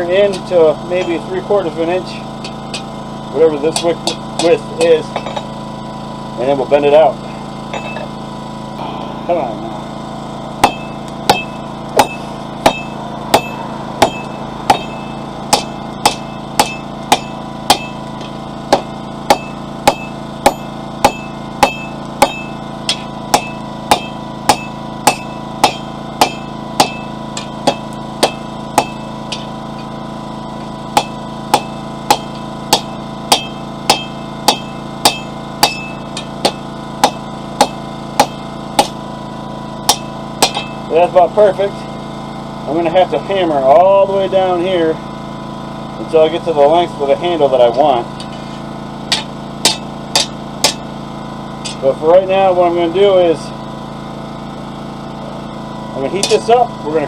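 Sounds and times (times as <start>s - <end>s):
generator humming: 0.0s - 57.0s
hammer striking steel on anvil: 0.2s - 1.4s, 2.0s - 2.9s, 3.7s - 5.5s, 7.7s - 8.1s, 10.6s - 29.9s, 30.6s - 39.0s, 39.8s - 40.9s, 49.1s - 50.9s, 51.6s - 51.9s, 56.2s - 56.7s.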